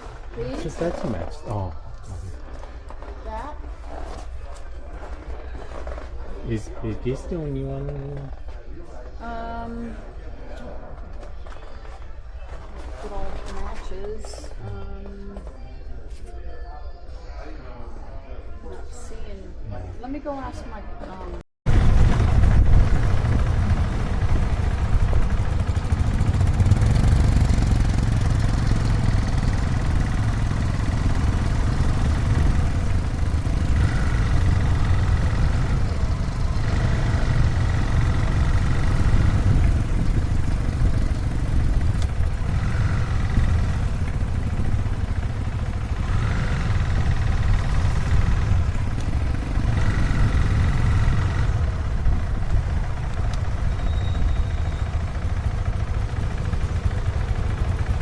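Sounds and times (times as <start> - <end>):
motorcycle engine rumbling: 21.7 - 58.0.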